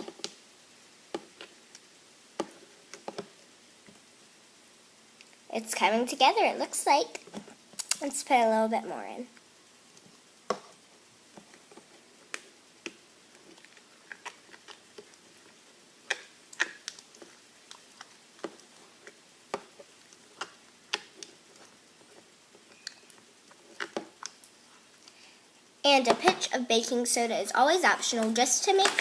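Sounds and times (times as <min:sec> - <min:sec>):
slime sticky clicks and wet pops: 0:07.8 - 0:08.1, 0:16.1 - 0:18.6.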